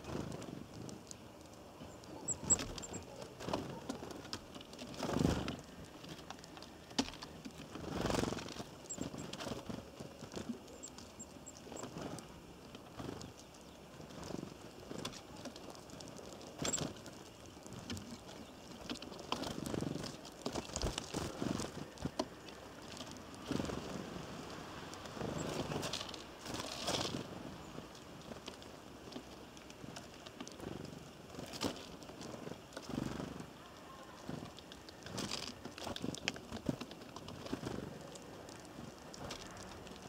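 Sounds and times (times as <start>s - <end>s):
birds tapping and scraping: 0.0s - 40.0s
faint high bird chirps: 1.8s - 3.2s.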